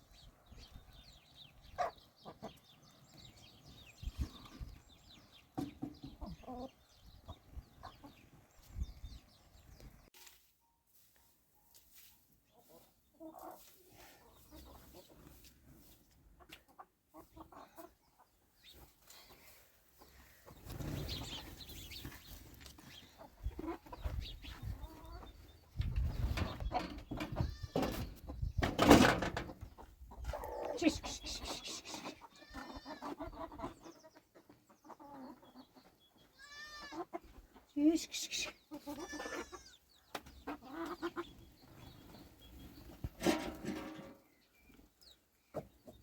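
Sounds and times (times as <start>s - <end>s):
hen clucking: 1.3s - 8.7s, 12.4s - 46.0s
sheep or goats bleating: 32.3s - 33.2s, 36.3s - 37.1s, 38.8s - 39.8s.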